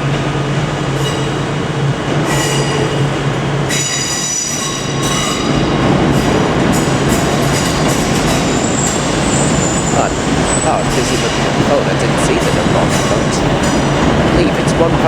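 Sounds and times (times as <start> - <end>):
train diesel engines humming: 0.0 - 15.0
high-pitched metallic brake squeal: 2.3 - 3.0, 3.7 - 5.6, 8.3 - 11.2.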